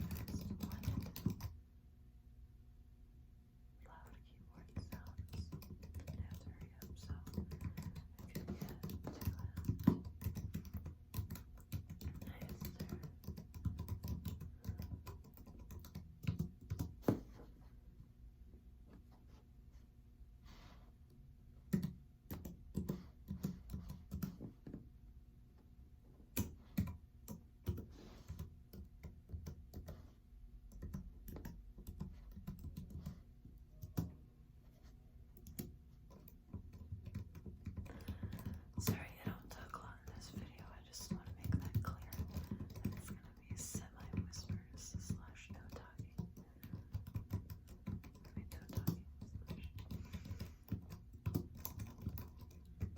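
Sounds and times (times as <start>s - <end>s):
computer keyboard typing: 0.0s - 1.6s, 4.6s - 17.0s, 21.7s - 24.5s, 26.4s - 30.0s, 30.6s - 34.2s, 35.4s - 52.9s.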